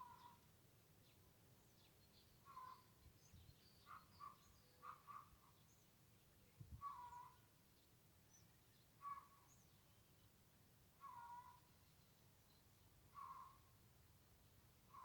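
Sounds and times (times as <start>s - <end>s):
small birds chirping: 0.0s - 10.3s.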